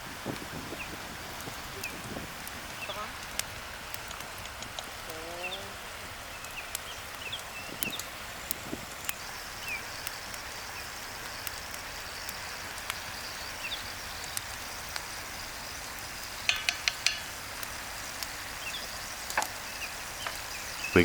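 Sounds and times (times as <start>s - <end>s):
food sizzling in a pot: 0.0s - 21.0s
small pops: 1.4s - 5.2s, 15.9s - 20.6s.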